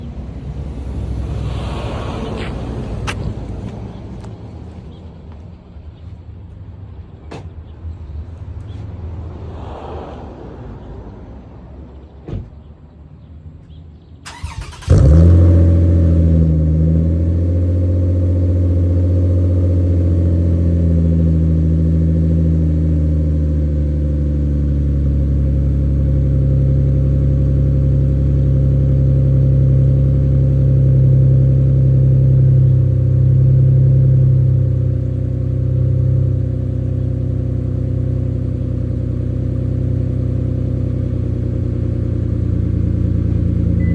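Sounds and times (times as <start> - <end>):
car engine starting: 13.7 - 43.9.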